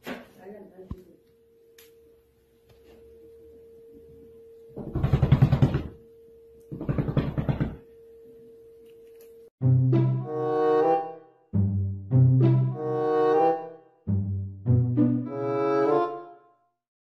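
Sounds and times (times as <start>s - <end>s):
faint steady hum: 0.6s - 9.5s.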